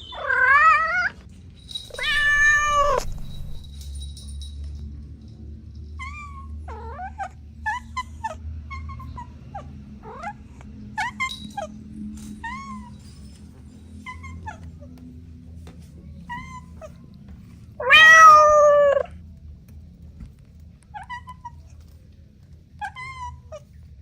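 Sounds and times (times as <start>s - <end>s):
steady low hum: 1.6s - 5.8s
kittens mewing: 1.9s - 3.6s, 17.8s - 19.1s.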